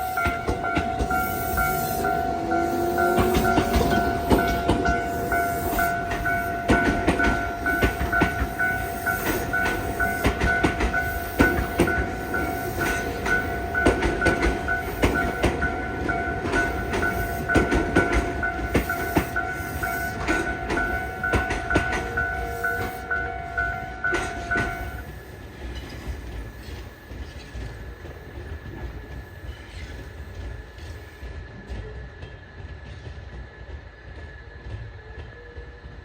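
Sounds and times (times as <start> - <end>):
steady high tone: 0.0 - 25.2
train wheels clicking over rail joints: 0.0 - 34.9.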